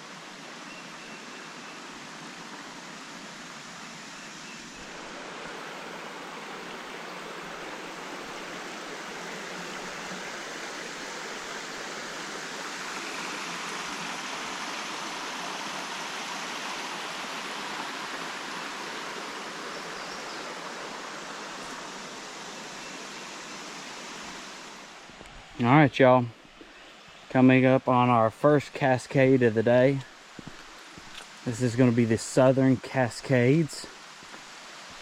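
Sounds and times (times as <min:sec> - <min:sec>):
water rushing over rocks: 0:01.8 - 0:25.6.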